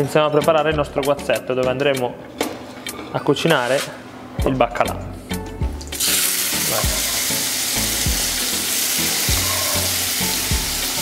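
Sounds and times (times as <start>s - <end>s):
tomatoes sizzling in oil: 5.9s - 11.0s.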